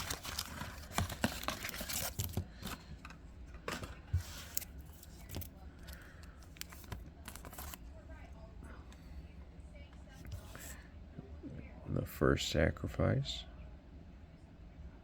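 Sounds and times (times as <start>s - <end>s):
cards shuffling and sliding: 4.1s - 7.8s.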